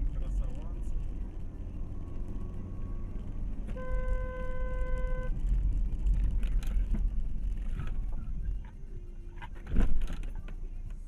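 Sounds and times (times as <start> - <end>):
car driving rumble: 0.0 - 11.0
car horn honk: 3.7 - 5.4.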